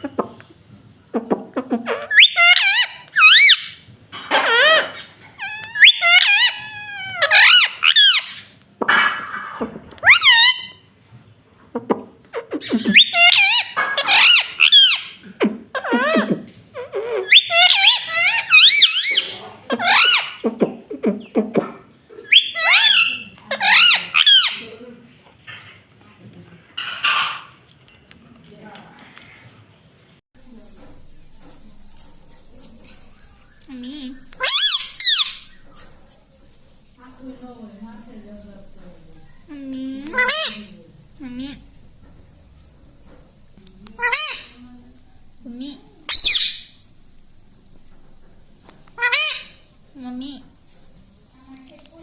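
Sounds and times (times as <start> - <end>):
parakeet squeaky calls: 1.9 - 8.5, 10.0 - 10.8, 12.4 - 15.2, 15.8 - 20.5, 22.2 - 24.7, 32.9 - 36.1, 40.1 - 40.8, 44.0 - 44.6, 46.1 - 46.8, 49.0 - 49.7.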